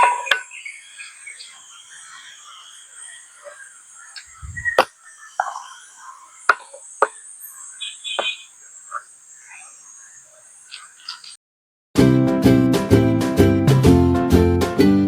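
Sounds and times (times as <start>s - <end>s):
faint high hiss: 0.4s - 11.4s.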